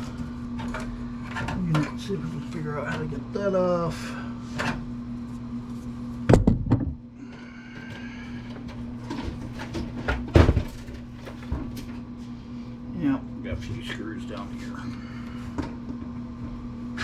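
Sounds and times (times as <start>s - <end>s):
steady low hum: 0.0s - 17.0s
computer case knocking: 6.3s - 7.0s, 10.1s - 10.8s.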